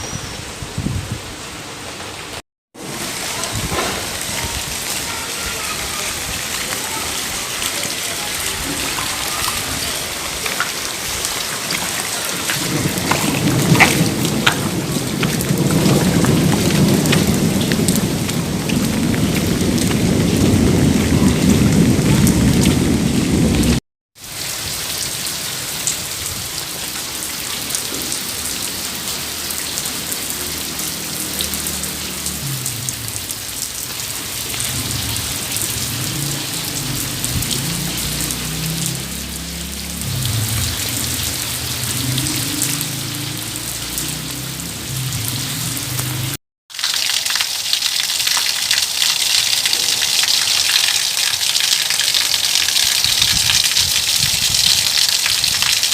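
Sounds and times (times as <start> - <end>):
steady rain falling: 1.2 - 55.9
thunder rumbling: 5.7 - 23.8, 34.2 - 46.4.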